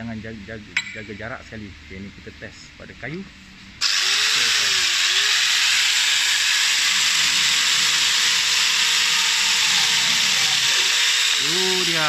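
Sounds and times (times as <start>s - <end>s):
chainsaw cutting wood: 3.8s - 12.0s.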